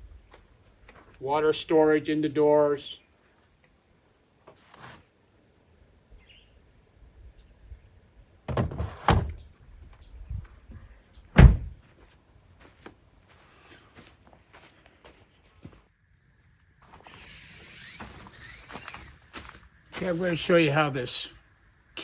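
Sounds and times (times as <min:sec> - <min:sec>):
truck doors thudding shut: 0:08.5 - 0:09.4, 0:11.3 - 0:11.8.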